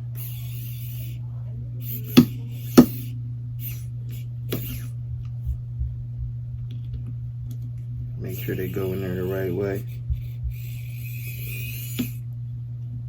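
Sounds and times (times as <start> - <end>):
low hum: 0.0 - 13.0
small screws and tool ticks: 0.1 - 1.1, 1.8 - 3.8, 8.3 - 12.2
sharp clicks: 1.9 - 3.1.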